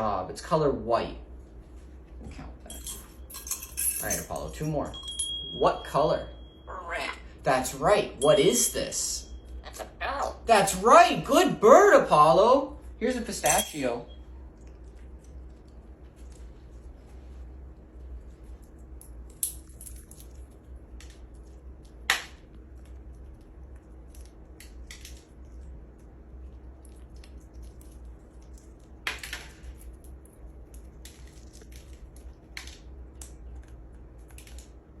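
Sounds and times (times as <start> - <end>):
parrot cracking pistachio shell: 19.0 - 25.9.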